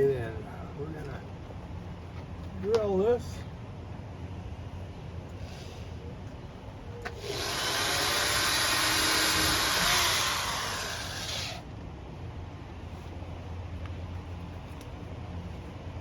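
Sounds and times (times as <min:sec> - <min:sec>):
power drill drilling metal sheet: 0:07.2 - 0:11.6.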